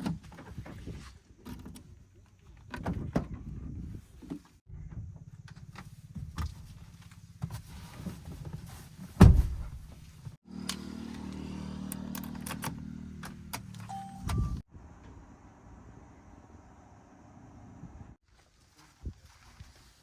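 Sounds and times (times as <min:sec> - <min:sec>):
loud heavy thump: 0:09.2 - 0:09.9.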